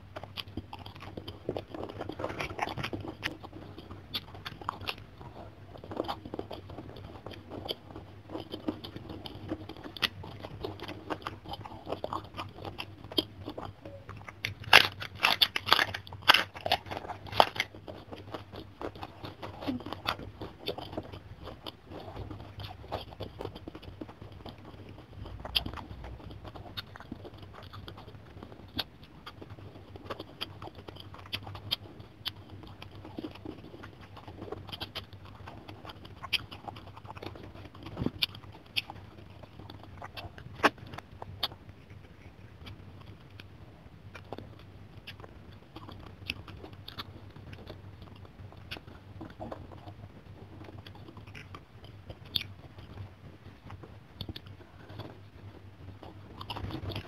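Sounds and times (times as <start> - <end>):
chewing and crunching food: 0.0 - 57.0.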